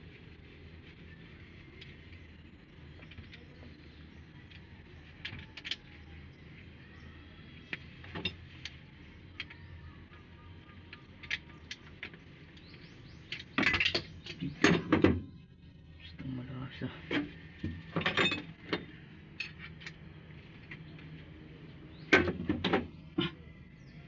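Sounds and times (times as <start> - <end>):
metal tools clinking: 18.0 - 18.5.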